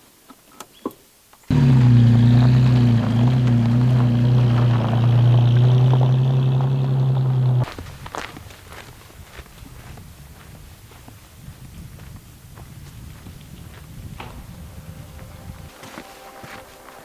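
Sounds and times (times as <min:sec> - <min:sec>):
engine running at constant pitch: 0:01.5 - 0:07.7.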